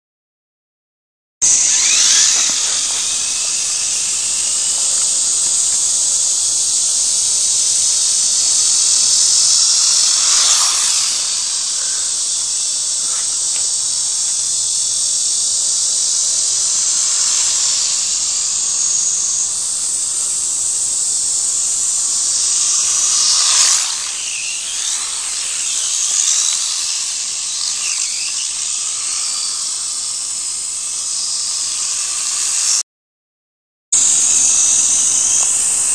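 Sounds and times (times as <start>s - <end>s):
toy truck electric motor whining: 1.4s - 5.7s, 9.2s - 12.1s.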